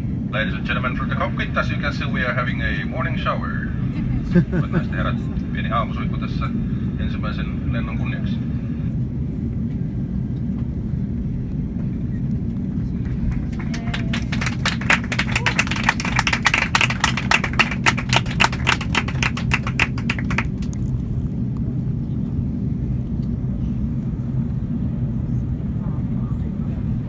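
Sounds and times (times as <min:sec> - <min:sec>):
airplane cabin hum: 0:00.0 - 0:27.0
rapid sharp clicks and pats: 0:15.9 - 0:20.8.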